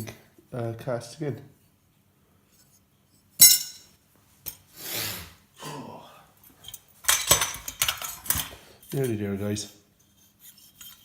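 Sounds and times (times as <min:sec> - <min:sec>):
metal parts clinking: 0:03.4 - 0:03.9, 0:06.6 - 0:09.2
metal scraping rub: 0:10.0 - 0:11.0.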